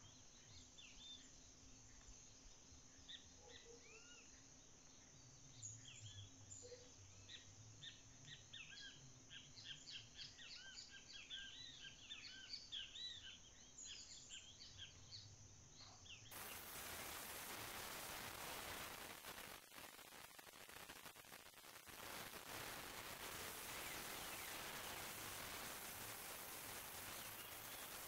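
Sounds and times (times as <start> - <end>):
small birds chirping: 0.0 - 28.0
steady hiss: 16.3 - 28.0.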